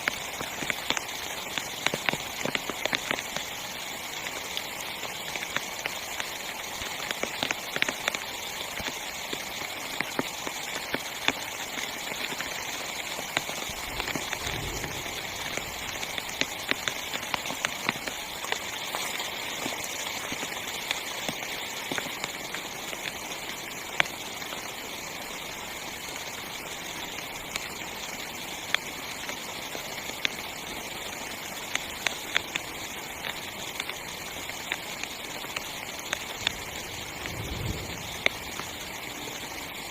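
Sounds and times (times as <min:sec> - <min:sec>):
heavy rain on tent fabric: 0:00.0 - 0:39.9
low rumble: 0:13.6 - 0:17.5, 0:36.3 - 0:39.9.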